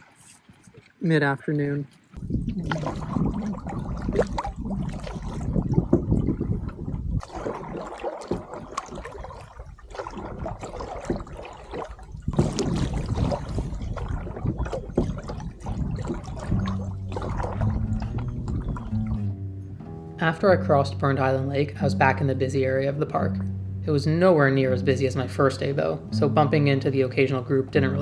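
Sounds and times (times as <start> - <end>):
paddle splashes: 1.9 - 28.0
water slapping against hull: 2.0 - 19.8
strong wind: 2.2 - 19.3
low steady background music: 16.8 - 28.0.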